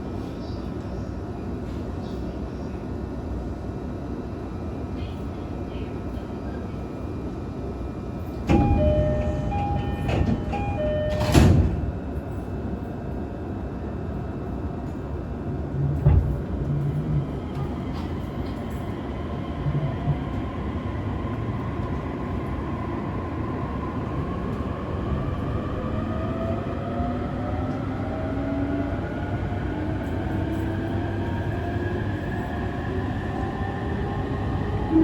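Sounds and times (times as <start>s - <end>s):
train motors whining: 8.5s - 11.8s
wheels rumbling on rails: 8.5s - 12.6s.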